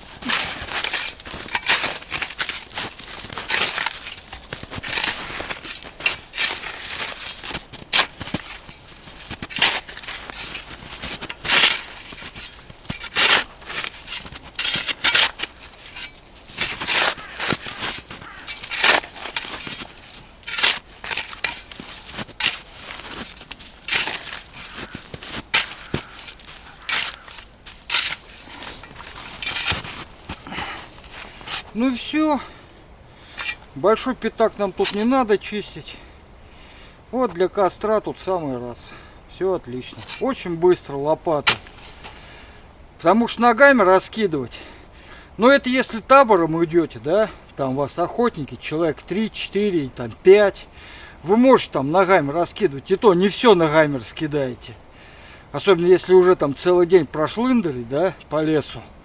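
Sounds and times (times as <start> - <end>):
shovel scraping snow: 0.0 - 33.8, 34.4 - 35.3, 39.9 - 40.6, 41.3 - 42.4.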